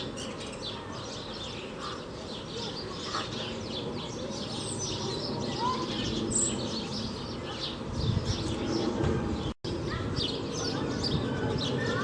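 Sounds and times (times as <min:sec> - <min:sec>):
small birds chirping: 0:00.0 - 0:12.0
steady background noise: 0:00.0 - 0:12.0.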